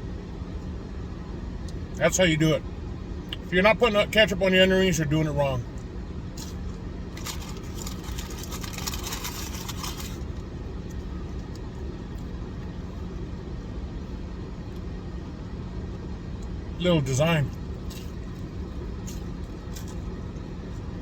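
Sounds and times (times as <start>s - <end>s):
packaging rustling: 7.2s - 10.2s.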